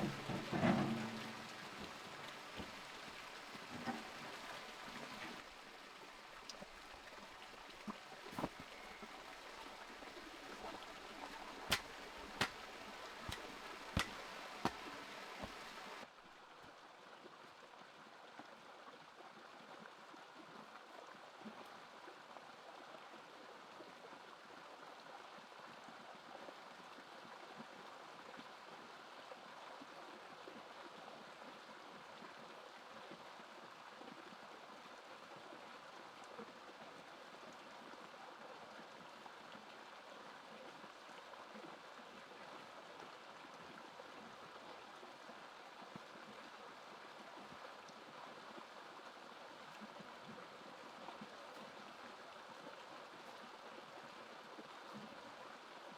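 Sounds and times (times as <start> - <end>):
faint running water: 0.0 - 55.9.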